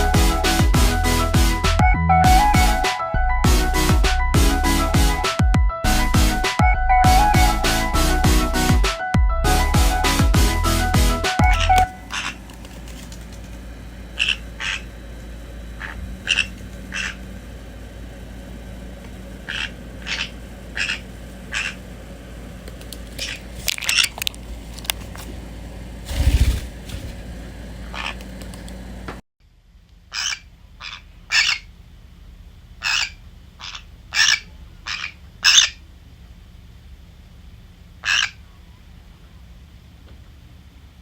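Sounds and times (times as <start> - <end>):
parrots giving sharp calls: 11.4 - 13.1, 14.2 - 14.9, 15.8 - 17.2, 19.5 - 21.8, 30.1 - 31.7, 32.8 - 35.8, 38.0 - 38.4.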